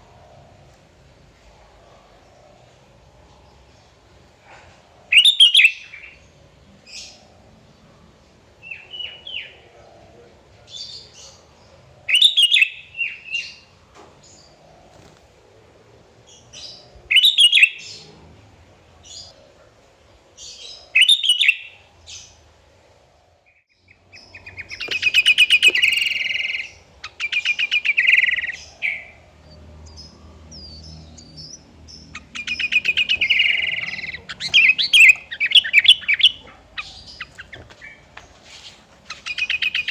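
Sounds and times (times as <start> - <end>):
bulbul singing: 23.8 - 38.0.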